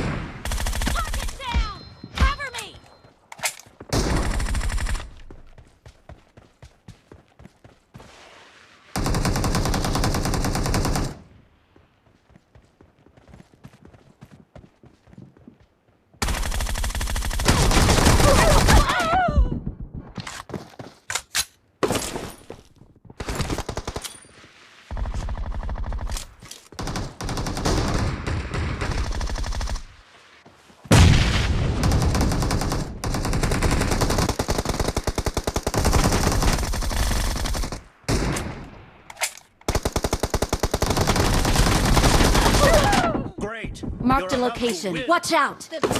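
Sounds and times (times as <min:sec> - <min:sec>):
video game automatic gunfire: 0:09.0 - 0:11.2, 0:16.2 - 0:18.7, 0:26.8 - 0:29.8, 0:31.8 - 0:38.2, 0:39.7 - 0:42.9.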